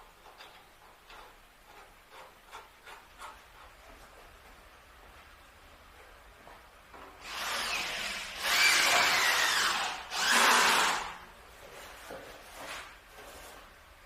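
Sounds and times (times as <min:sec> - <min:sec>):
power tool running: 0:07.2 - 0:11.2.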